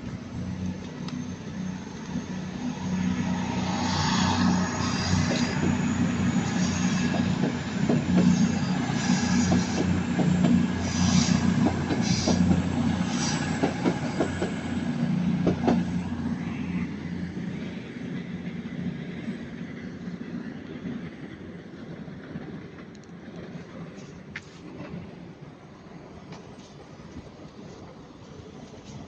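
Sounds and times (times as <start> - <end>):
train wheels clicking over rail joints: 4.3 - 16.0.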